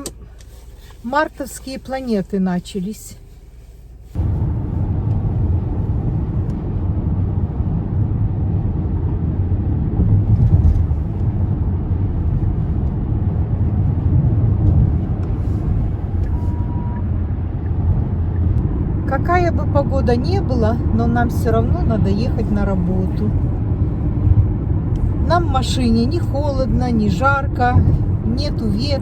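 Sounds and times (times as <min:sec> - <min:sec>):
car engine and tyre rumble: 0:00.0 - 0:29.0
short faint beep: 0:16.5 - 0:17.0.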